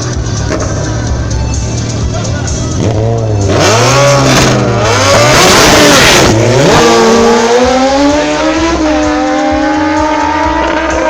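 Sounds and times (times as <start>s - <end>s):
sport motorcycle engine revving: 2.7s - 11.0s.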